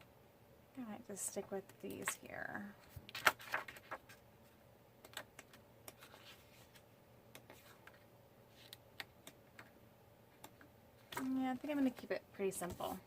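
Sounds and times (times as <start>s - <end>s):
paper clicks and taps: 5.0s - 6.1s.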